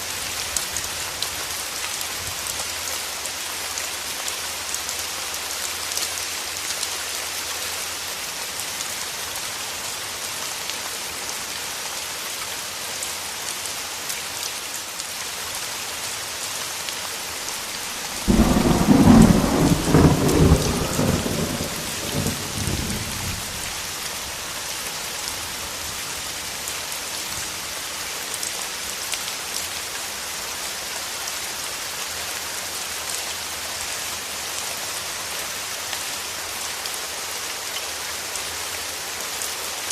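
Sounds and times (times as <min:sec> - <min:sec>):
steady rain: 0:00.0 - 0:39.9
thunder clap rumbling: 0:18.1 - 0:23.6.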